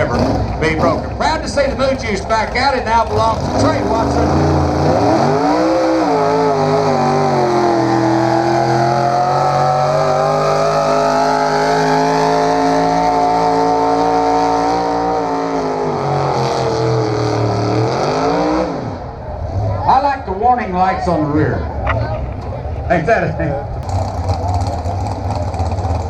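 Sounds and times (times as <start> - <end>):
vehicle engine revving under load: 3.0 - 19.9.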